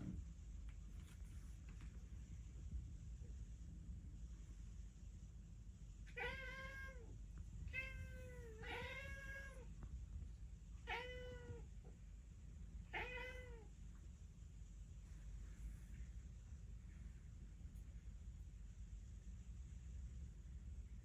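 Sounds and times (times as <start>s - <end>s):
cat meowing: 6.1s - 7.1s, 7.7s - 9.7s, 10.8s - 11.6s, 12.9s - 13.7s.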